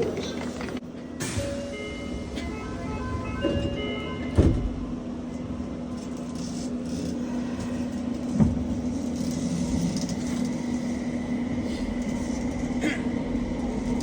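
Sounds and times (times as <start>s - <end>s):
steady train hum: 0.0s - 14.0s
door chime: 1.2s - 4.8s
doors thudding shut: 4.3s - 4.8s.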